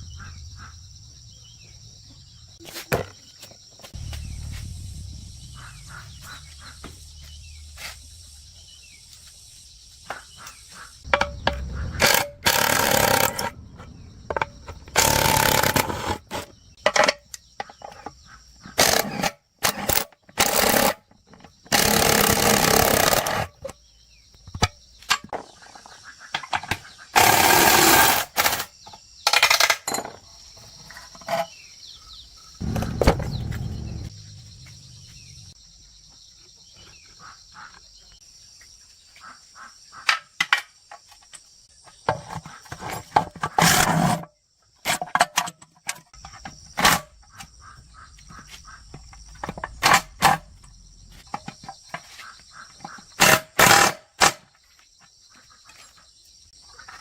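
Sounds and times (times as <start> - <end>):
insects chirping: 0.0 - 57.0
power tool bursts: 12.0 - 13.5, 15.0 - 16.2, 21.7 - 23.5.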